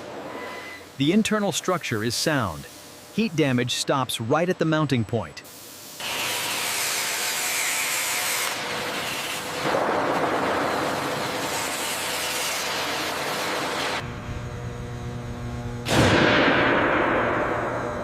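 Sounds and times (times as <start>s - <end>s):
steady hissing noise: 0.0s - 7.7s
faint hum: 14.0s - 18.0s.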